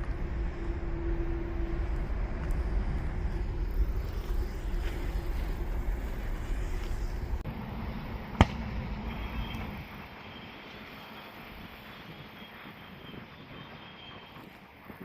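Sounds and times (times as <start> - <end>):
airliner engine rumble: 0.0 - 15.0.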